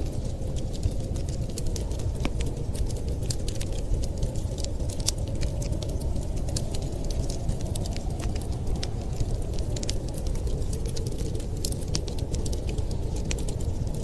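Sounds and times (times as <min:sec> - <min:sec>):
fire low rumble: 0:00.0 - 0:14.0
fire pops and snaps: 0:00.0 - 0:14.0.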